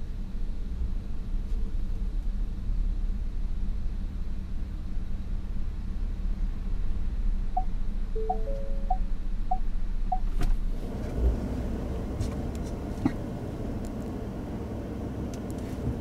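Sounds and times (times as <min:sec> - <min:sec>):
truck engine and tyre noise: 0:00.0 - 0:16.0
parking sensor beeps: 0:07.6 - 0:10.4
chime tones: 0:08.2 - 0:09.0.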